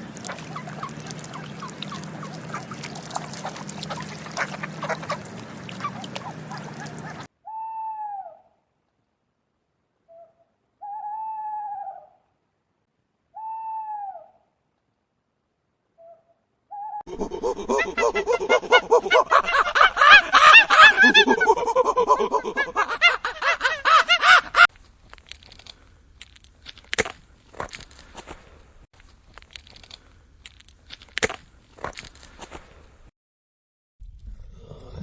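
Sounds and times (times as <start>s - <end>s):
owl hooting: 0.0s - 8.4s, 10.1s - 12.2s, 13.4s - 14.4s.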